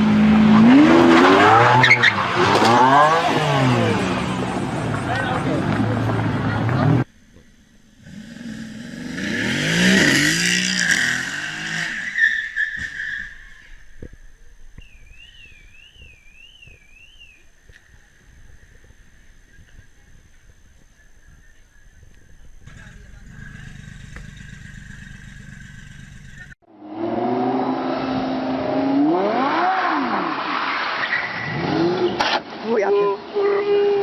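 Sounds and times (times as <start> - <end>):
car engine revving: 0.0 - 7.1, 7.9 - 12.2, 22.2 - 30.7
vehicle and road rumble: 0.0 - 34.0.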